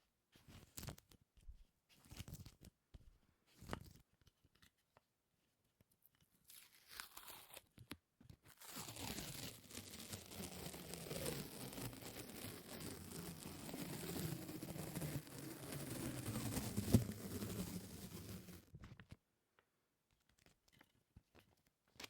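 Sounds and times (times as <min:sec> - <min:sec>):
sticky crackling and tearing: 0:06.5 - 0:07.7, 0:08.6 - 0:18.5.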